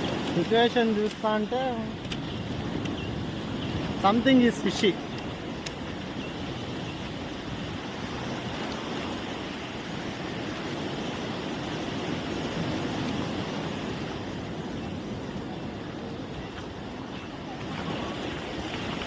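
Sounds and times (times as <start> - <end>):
sea surf washing: 0.0 - 19.0.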